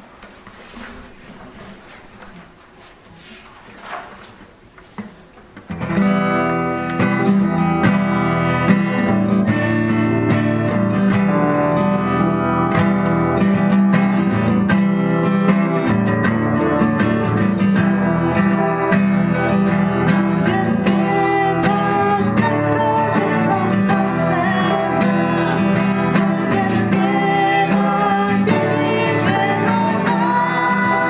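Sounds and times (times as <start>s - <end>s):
strummed acoustic guitar: 4.9s - 31.0s
worship song music: 15.9s - 31.0s.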